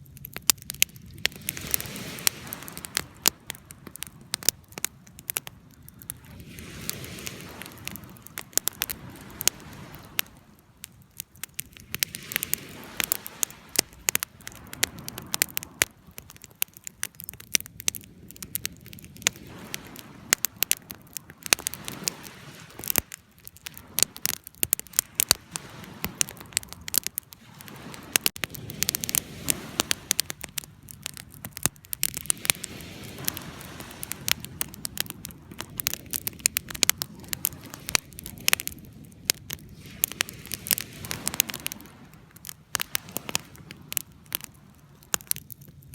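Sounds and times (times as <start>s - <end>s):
low rumble of burning: 0.0s - 45.9s
sharp snaps of fire: 0.0s - 45.9s
wood fire crackling: 0.0s - 45.9s.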